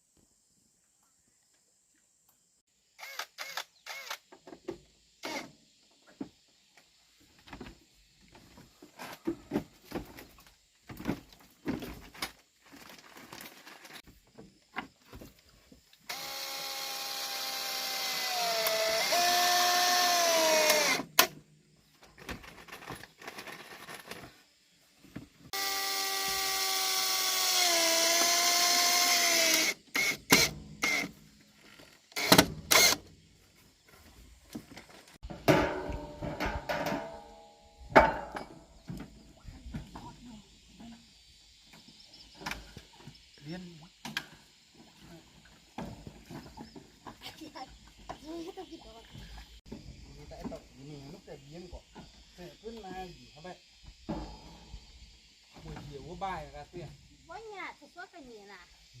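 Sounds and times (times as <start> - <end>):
power drill whine: 3.0 - 4.2, 5.2 - 5.5, 16.1 - 21.1, 25.5 - 33.0
knocks and clatter of handling: 34.5 - 37.3.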